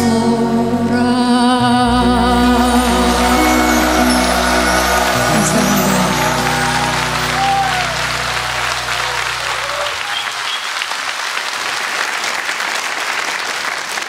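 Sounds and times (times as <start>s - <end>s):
band's sustained final chord: 1.6s - 10.0s
audience applauding: 2.6s - 14.0s.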